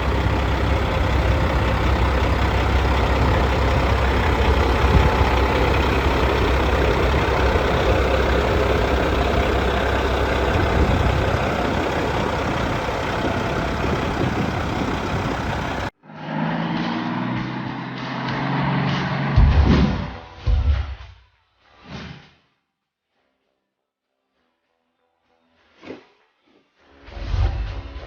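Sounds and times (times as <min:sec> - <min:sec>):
steady tones: 0:00.0 - 0:15.9
truck diesel engine rumbling: 0:00.0 - 0:16.0.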